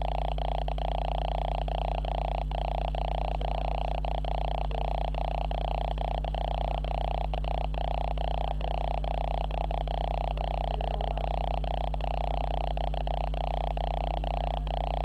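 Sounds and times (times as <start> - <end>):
camera electrical hum and buzz: 0.0 - 15.0.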